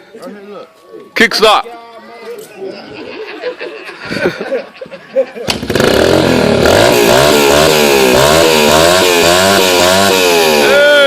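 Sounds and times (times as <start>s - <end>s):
dirt bike engine revving: 5.5s - 11.0s.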